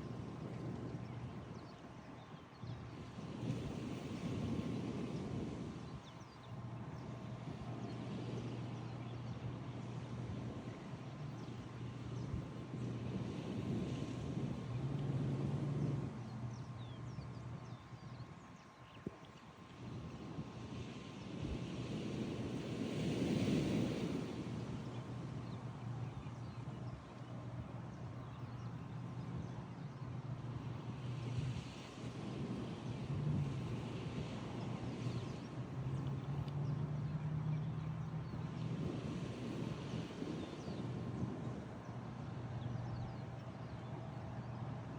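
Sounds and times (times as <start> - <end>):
ocean surf on shore: 19.5 - 26.0, 30.2 - 44.9.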